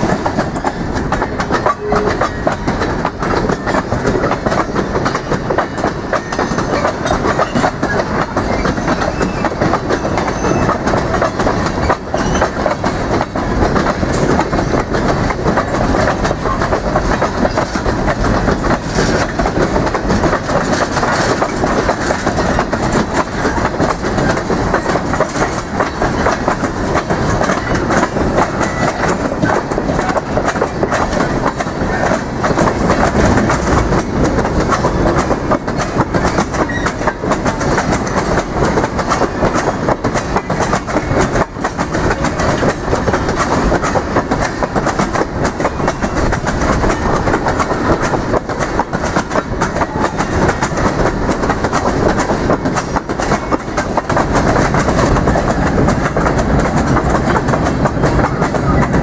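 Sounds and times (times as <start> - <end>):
train wheels clattering: 0.0 - 59.0.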